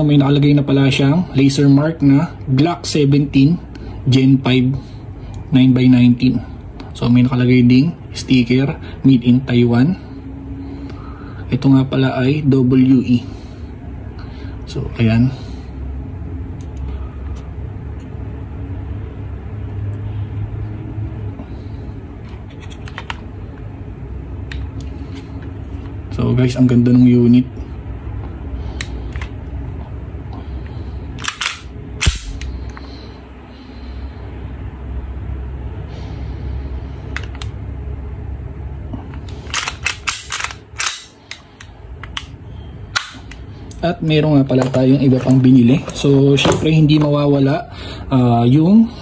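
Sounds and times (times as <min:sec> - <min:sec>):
low steady hum: 0:00.0 - 0:49.0
steady low rumble: 0:00.0 - 0:49.0
plastic and metal pistol clicks: 0:31.2 - 0:32.5, 0:39.5 - 0:42.3
pistol clicks and taps: 0:43.0 - 0:43.4.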